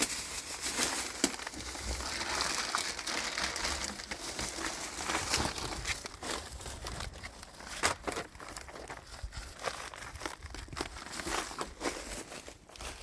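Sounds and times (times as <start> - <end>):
rustling and crinkling: 0.0 - 13.0.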